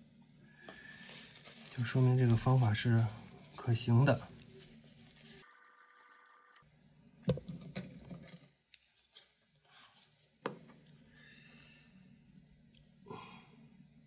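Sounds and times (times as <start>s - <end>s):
light rubbing and scraping: 0.8s - 5.7s.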